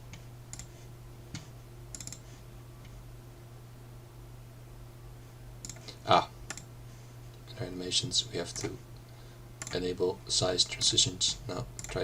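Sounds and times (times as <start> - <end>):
low electrical hum: 0.0 - 12.0
computer mouse clicks: 0.1 - 3.0, 5.6 - 6.7, 11.8 - 12.0.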